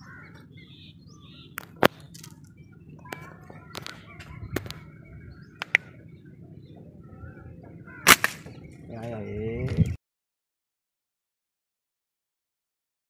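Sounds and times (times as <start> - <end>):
small birds chirping: 0.0 - 10.0
sharp clicks: 1.6 - 4.9, 5.6 - 5.9
loud sharp crack: 8.0 - 8.6.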